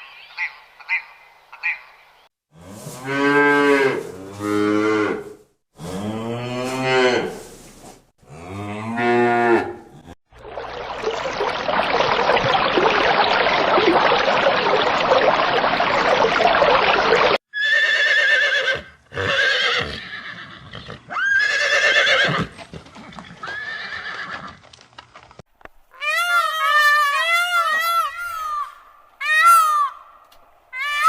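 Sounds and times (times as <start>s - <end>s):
horse whinnying: 17.5s - 24.6s.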